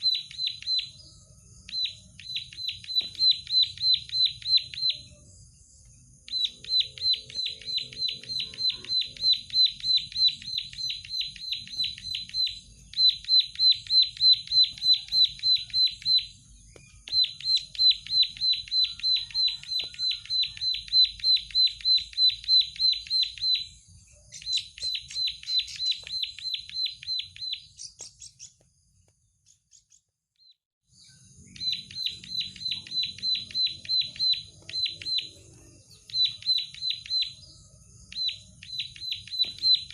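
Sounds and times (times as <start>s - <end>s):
bird singing high notes: 6.3s - 28.4s.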